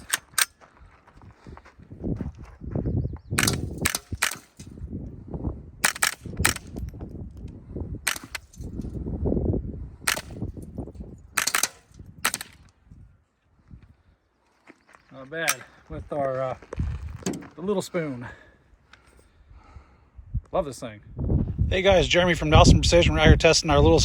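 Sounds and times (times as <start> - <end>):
suppressed rifle shots: 3.4 - 4.6, 5.8 - 6.8, 8.1 - 8.6, 10.1 - 10.5, 11.4 - 12.7.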